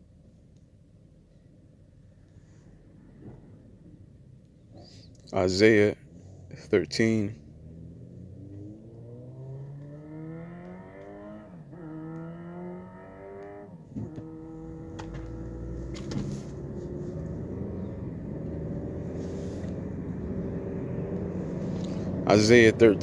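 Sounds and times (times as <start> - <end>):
car engine accelerating: 5.6 - 23.0.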